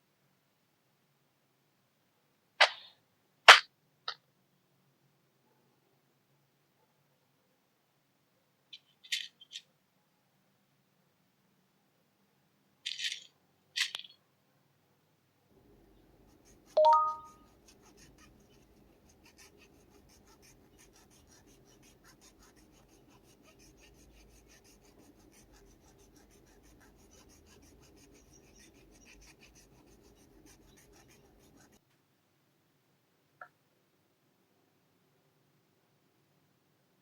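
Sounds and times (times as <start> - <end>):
scratching on hard surface: 16.2 - 31.8.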